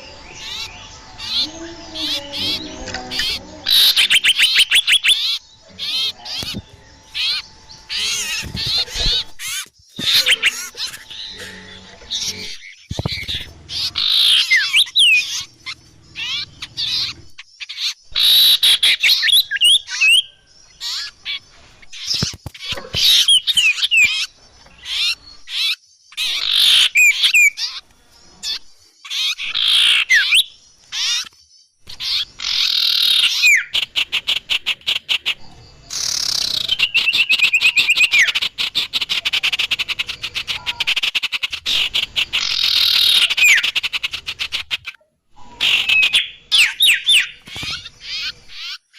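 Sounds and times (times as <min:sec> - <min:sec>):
bird rattling trill and chatter: 0:00.0 - 0:48.9
bird chirps and whistles: 0:03.7 - 0:05.4, 0:12.9 - 0:15.5, 0:35.9 - 0:39.8, 0:45.6 - 0:48.8.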